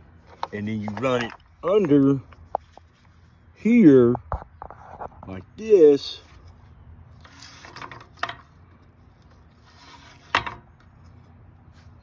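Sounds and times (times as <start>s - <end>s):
winch strap rubbing: 9.1s - 12.0s.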